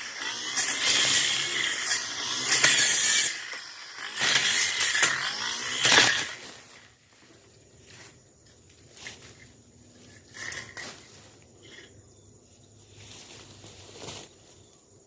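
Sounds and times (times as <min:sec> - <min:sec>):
brush cutter slashing brush: 0:00.0 - 0:07.0.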